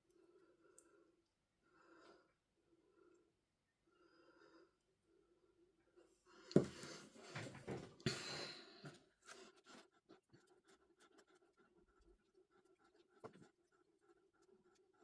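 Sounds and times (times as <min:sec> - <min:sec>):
faint clicks and taps: 0:08.8 - 0:15.0.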